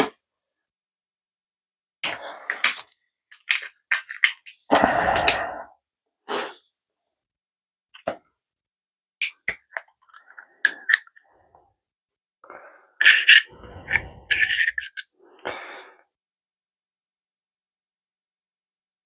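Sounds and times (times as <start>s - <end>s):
small clicks and scrapes: 2.0s - 4.6s, 9.2s - 11.4s, 13.0s - 15.2s.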